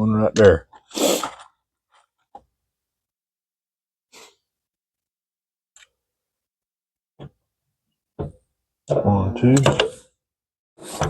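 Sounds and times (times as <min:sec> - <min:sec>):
short breathy puff: 0:00.9 - 0:01.4, 0:04.1 - 0:04.5.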